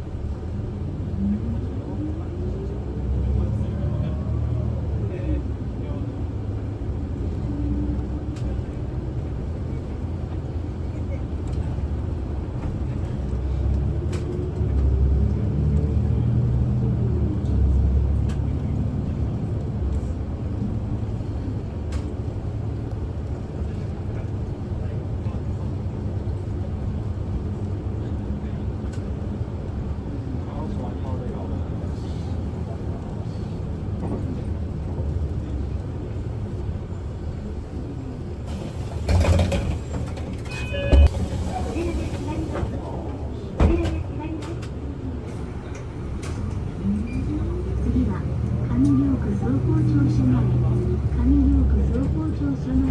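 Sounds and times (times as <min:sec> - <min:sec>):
bus engine and road rumble: 0:00.0 - 0:52.9
clatter: 0:38.6 - 0:41.1.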